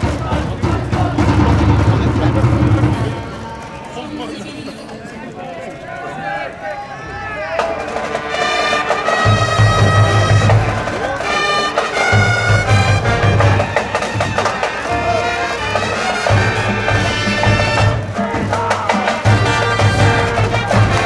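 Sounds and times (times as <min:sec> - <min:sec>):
brass band playing: 0:00.0 - 0:04.3, 0:07.2 - 0:21.0
heavy low brass part: 0:07.5 - 0:21.0.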